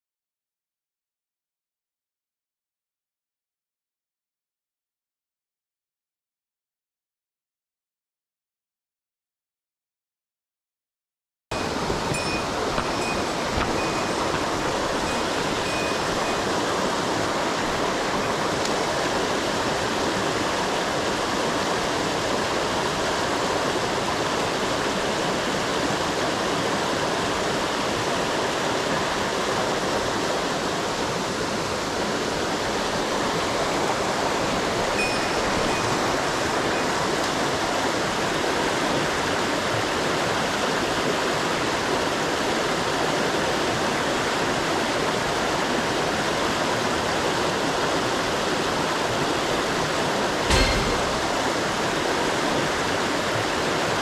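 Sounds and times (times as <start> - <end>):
mountain stream water rushing: 11.6 - 54.0.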